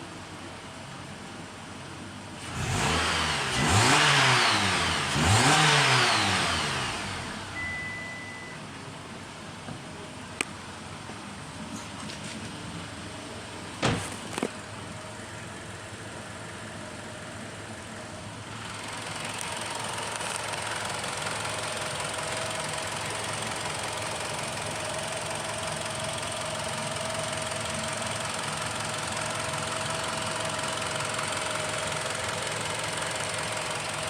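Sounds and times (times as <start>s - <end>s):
car engine running: 9.4s - 34.0s.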